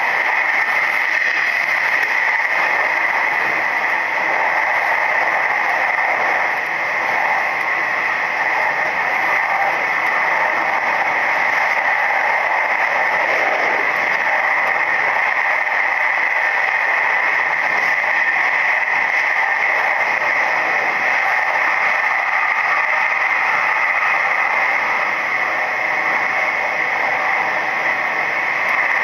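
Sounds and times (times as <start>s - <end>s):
electric train running noise: 0.0s - 29.0s.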